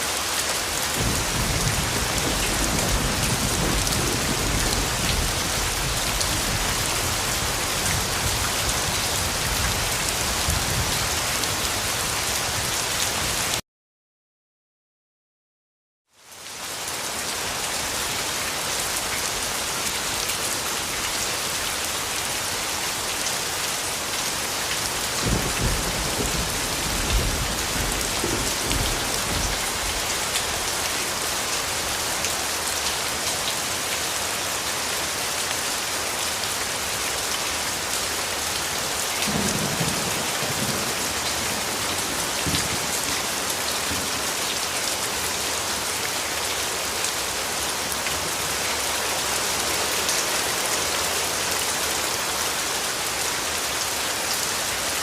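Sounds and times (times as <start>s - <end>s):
heavy rain hissing and pattering: 0.0s - 13.6s, 16.2s - 55.0s
distant thunder rumble: 1.0s - 7.6s, 25.2s - 30.0s.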